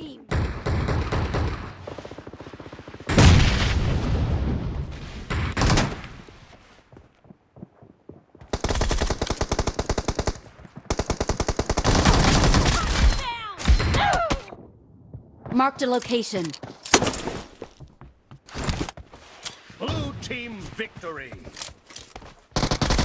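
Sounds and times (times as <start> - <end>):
rapid automatic fire: 8.6 - 12.9, 22.6 - 23.0.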